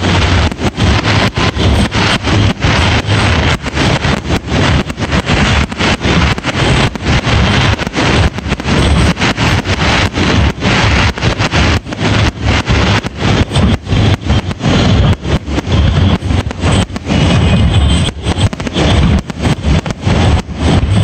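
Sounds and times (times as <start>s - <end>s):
firework shells bursting: 0.0s - 21.0s.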